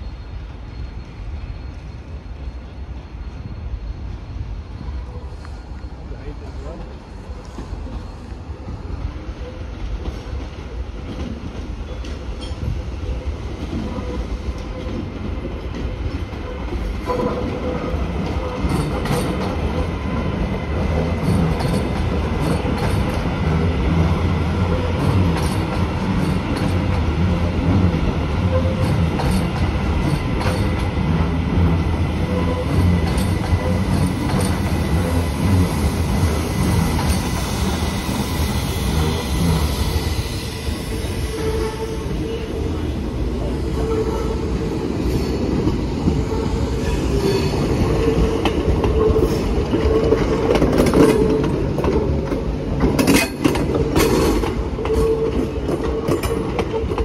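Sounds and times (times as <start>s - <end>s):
train wheels rumbling: 0.0s - 57.0s
wheels clicking over rail joints: 47.1s - 57.0s.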